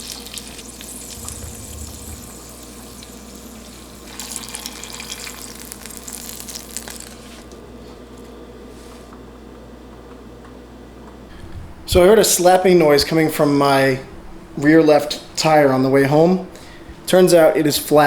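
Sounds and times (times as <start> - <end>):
water running from a tap: 0.0 - 7.4.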